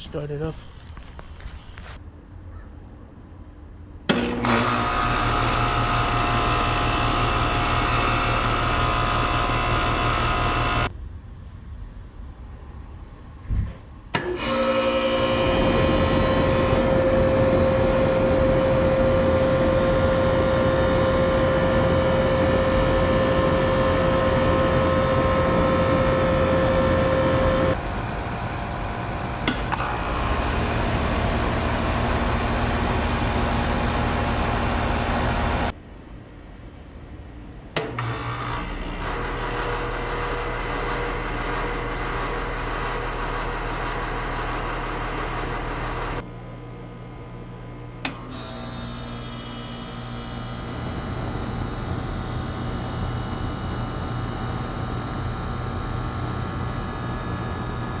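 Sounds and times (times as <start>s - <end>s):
air-conditioner units humming: 14.2s - 58.0s.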